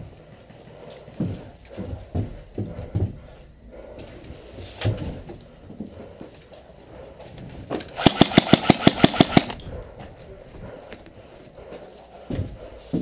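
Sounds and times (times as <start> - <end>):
airsoft rifle automatic burst: 8.0 - 9.6.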